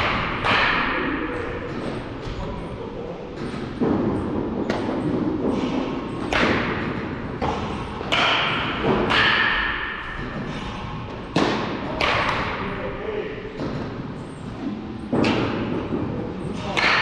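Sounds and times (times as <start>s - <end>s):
baseball impact thuds: 3.4s - 10.4s.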